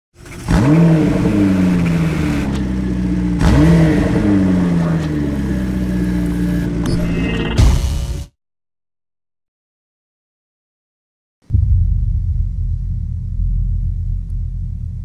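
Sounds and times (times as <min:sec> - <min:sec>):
sports car engine revving: 0:00.2 - 0:06.8.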